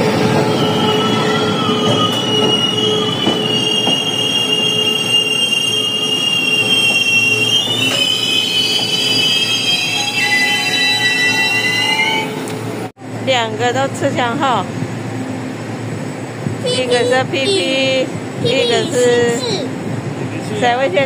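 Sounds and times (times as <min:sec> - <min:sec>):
wheels squealing on rails: 0:00.0 - 0:12.9
train cars rumbling past: 0:00.0 - 0:21.0
lower wheel squeal: 0:00.4 - 0:12.5.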